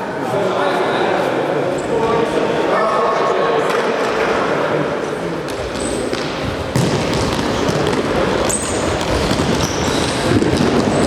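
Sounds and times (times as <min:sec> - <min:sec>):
football kicked and bouncing: 0:05.5 - 0:11.0
shoe squeaks: 0:08.4 - 0:11.0.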